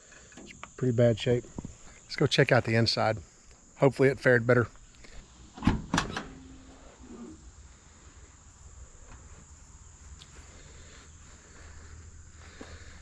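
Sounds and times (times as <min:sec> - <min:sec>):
insects chirring: 0:00.0 - 0:13.0
low outdoor rumble: 0:04.5 - 0:13.0.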